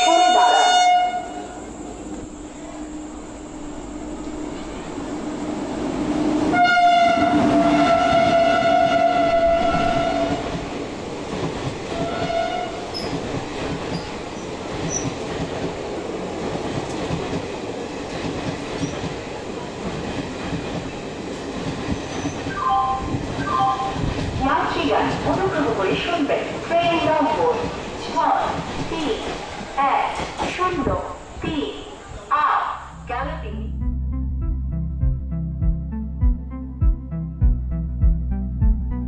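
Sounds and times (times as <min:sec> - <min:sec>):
train horn blasts: 0:00.0 - 0:02.9, 0:06.4 - 0:10.5, 0:11.9 - 0:12.9
train coaches rumbling and clattering: 0:00.0 - 0:32.8.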